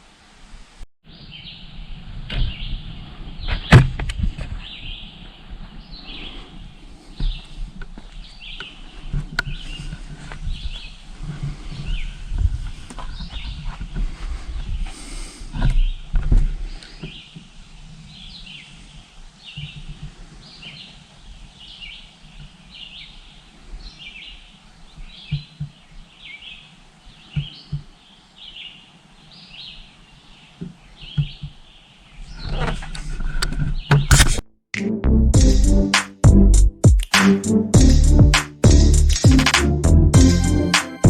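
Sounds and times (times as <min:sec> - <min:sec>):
bird chirping: 0:01.1 - 0:03.8.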